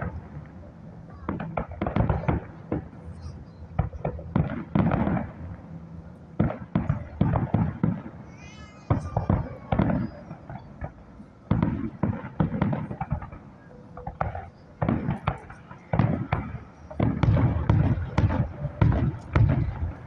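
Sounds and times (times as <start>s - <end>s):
fireworks bangs and booms: 0.0s - 20.0s.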